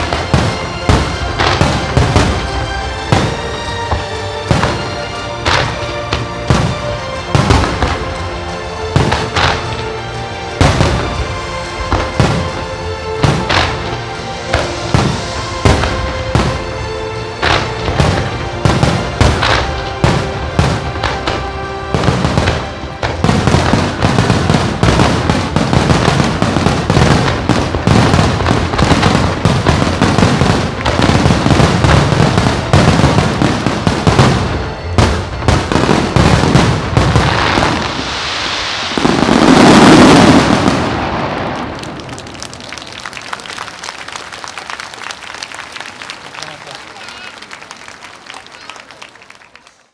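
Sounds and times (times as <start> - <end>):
music: 0.0 - 43.3
fireworks bursting: 0.0 - 46.1
loud rushing swell: 36.8 - 41.9.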